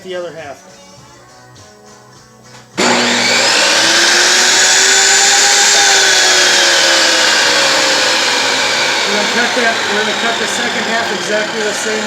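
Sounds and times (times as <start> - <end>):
table saw running with whine: 2.8 - 12.0.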